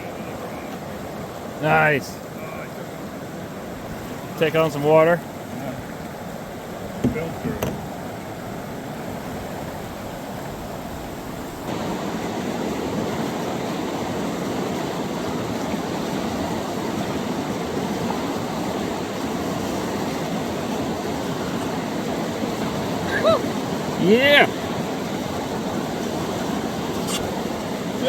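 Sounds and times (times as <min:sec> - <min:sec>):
river whitewater rushing: 0:00.0 - 0:28.0.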